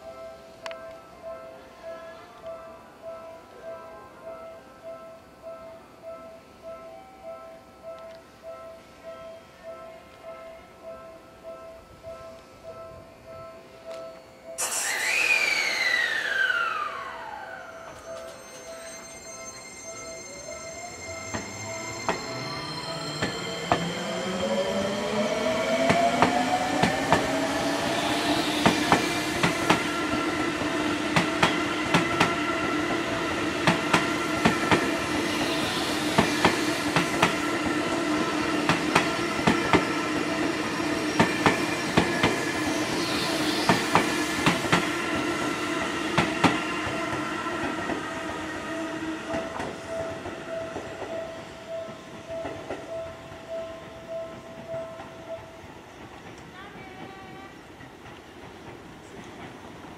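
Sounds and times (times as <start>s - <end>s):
electric train motor whine: 14.5s - 51.0s.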